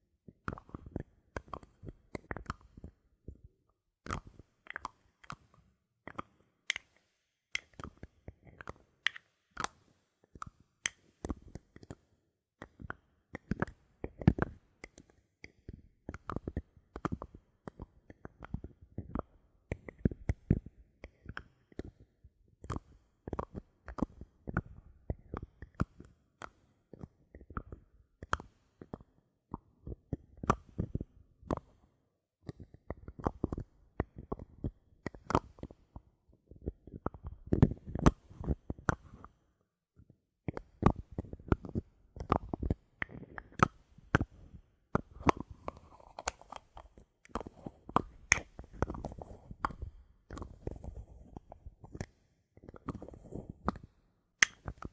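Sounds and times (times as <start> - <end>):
bottle caps clicking and tapping: 48.0 - 49.0, 54.4 - 54.9.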